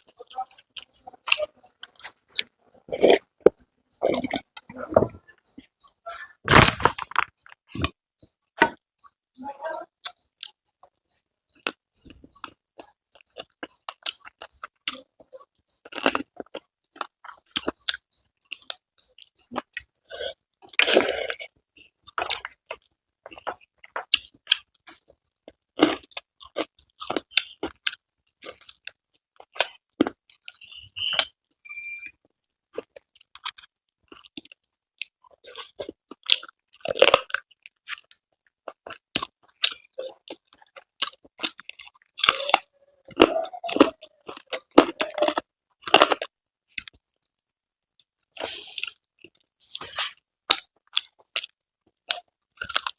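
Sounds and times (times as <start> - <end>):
chewing crisp food: 0.0 - 5.9, 10.0 - 52.9
mouth clicks: 38.7 - 47.0.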